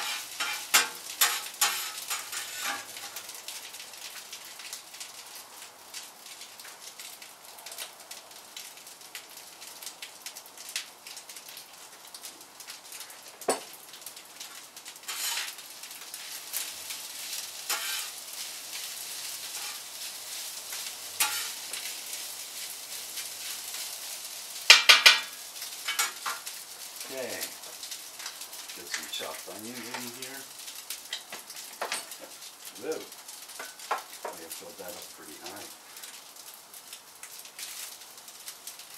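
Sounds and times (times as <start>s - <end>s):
stirring scrapes: 0.0s - 3.2s, 15.1s - 15.6s, 17.7s - 18.2s, 19.5s - 19.9s, 21.2s - 21.6s
rice sizzling in hot oil: 0.0s - 38.9s.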